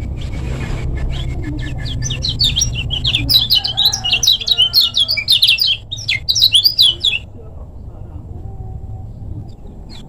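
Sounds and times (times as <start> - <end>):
low rumble: 0.2 - 9.6
bird singing sharp chirps: 1.2 - 7.2.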